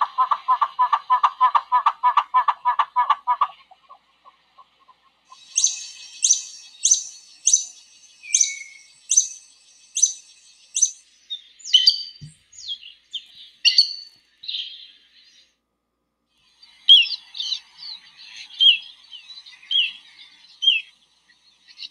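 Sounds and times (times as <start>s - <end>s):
high downward-sliding bird call: 5.3s - 13.0s
bird chirps and whistles: 5.3s - 14.9s, 20.6s - 20.9s.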